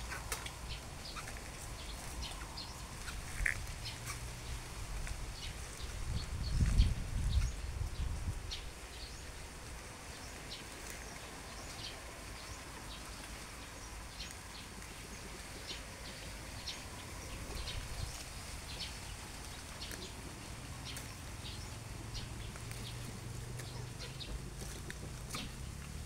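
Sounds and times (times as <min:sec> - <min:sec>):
low rumble on microphone: 0:00.0 - 0:08.8, 0:16.7 - 0:26.0
faint outdoor background: 0:00.0 - 0:26.0
small birds chirping: 0:00.0 - 0:26.0.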